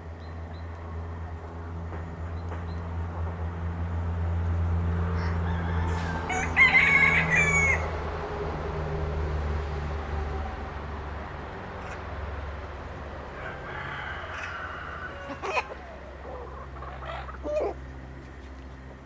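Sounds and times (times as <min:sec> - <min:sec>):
steady low hum: 0:00.0 - 0:19.0
rooster crowing: 0:05.1 - 0:08.5, 0:13.1 - 0:17.8
chickens clucking: 0:13.4 - 0:18.4.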